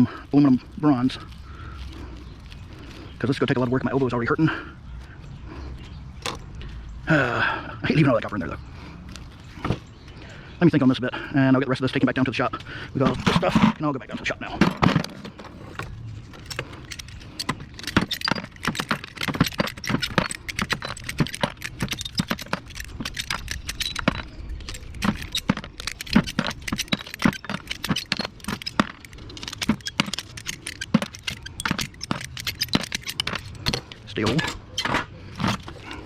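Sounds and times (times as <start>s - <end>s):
scrap metal clinking and rattling: 12.9s - 36.0s.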